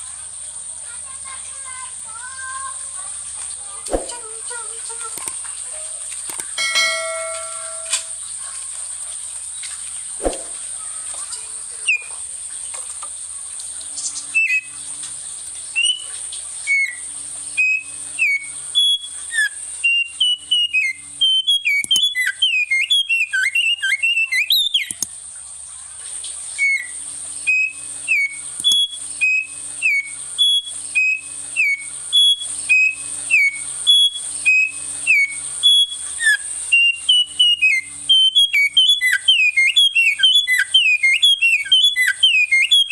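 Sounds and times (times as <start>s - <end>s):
sharp clicks: 5.1s - 5.5s, 6.2s - 6.6s, 21.7s - 22.3s, 24.7s - 25.1s, 28.5s - 28.9s
songbird whistling: 6.3s - 8.2s, 11.8s - 12.1s, 14.0s - 14.8s, 15.7s - 25.1s, 26.6s - 42.9s
high thin tone: 6.6s - 8.2s.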